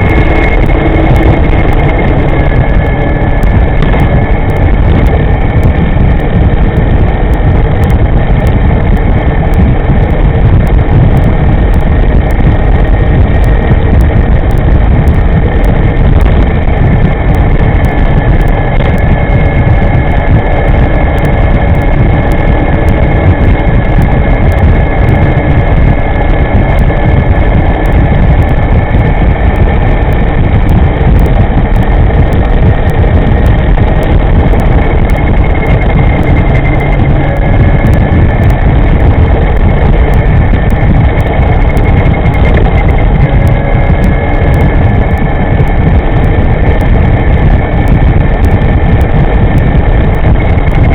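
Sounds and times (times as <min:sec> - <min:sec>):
electric motor whine: 0:00.0 - 0:50.9
wind rumble on microphone: 0:00.0 - 0:50.9.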